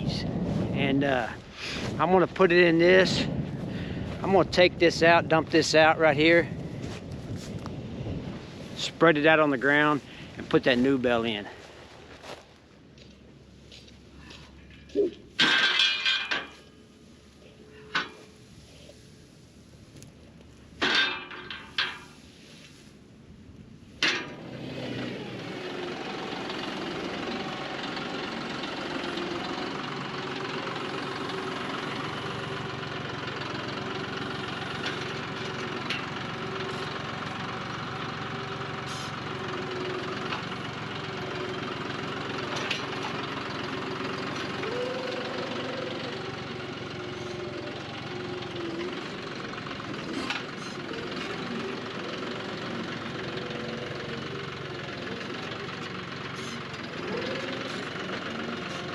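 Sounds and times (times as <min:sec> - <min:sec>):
tractor diesel engine running: 0:00.0 - 0:58.9
metallic clanks: 0:14.6 - 0:16.8, 0:17.7 - 0:18.4, 0:20.8 - 0:22.2, 0:24.0 - 0:24.6, 0:28.6 - 0:44.6, 0:48.7 - 0:52.0.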